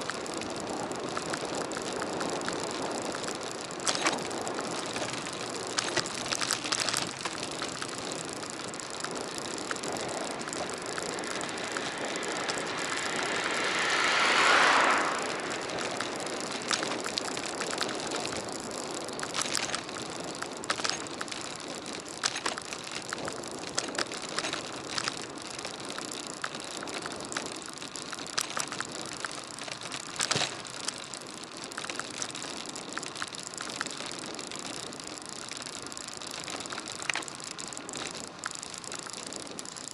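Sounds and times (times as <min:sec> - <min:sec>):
wind noise: 0:00.0 - 0:22.5
road noise: 0:00.0 - 0:39.0
bicycle clicks and rattles: 0:00.0 - 0:39.9
vehicle passing: 0:08.7 - 0:17.8.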